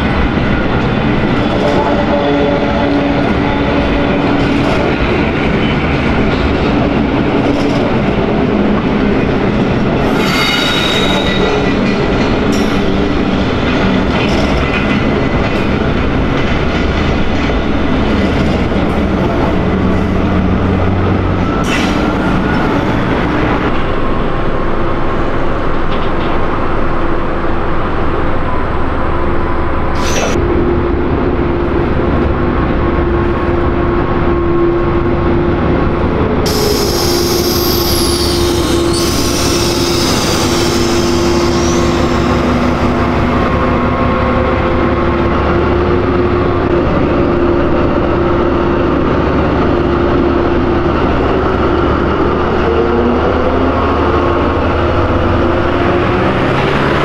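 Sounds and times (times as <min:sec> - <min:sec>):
diesel locomotive engine running: 0:00.0 - 0:57.0
freight train rolling past: 0:00.0 - 0:57.0
train wheels squealing: 0:10.1 - 0:11.8, 0:36.5 - 0:43.0.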